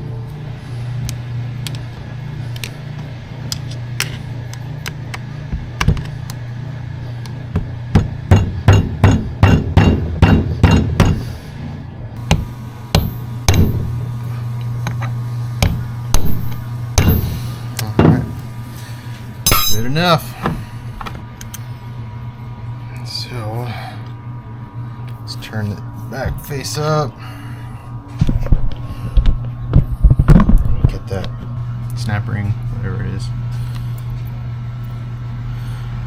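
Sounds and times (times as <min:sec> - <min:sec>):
steady low hum: 0:00.0 - 0:36.0
hammer tapping on steel: 0:08.0 - 0:11.2, 0:15.6 - 0:17.4, 0:19.5 - 0:20.0.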